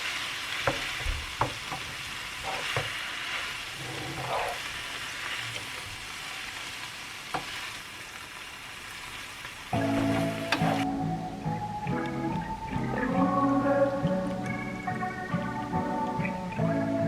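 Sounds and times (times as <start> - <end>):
food sizzling in a frying pan: 0.0 - 10.9
music: 9.8 - 17.0.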